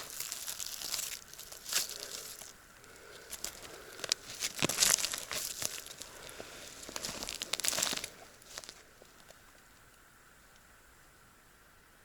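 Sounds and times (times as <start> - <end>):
footsteps through dry leaves: 0.0 - 8.9.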